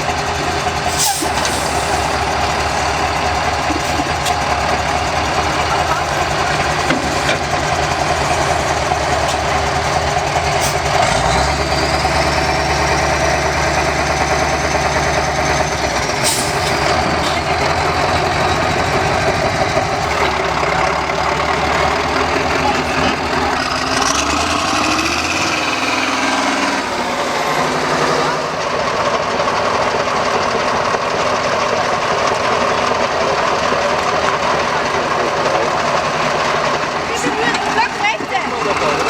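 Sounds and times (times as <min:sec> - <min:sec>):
heavy diesel truck engine: 0:00.0 - 0:39.0.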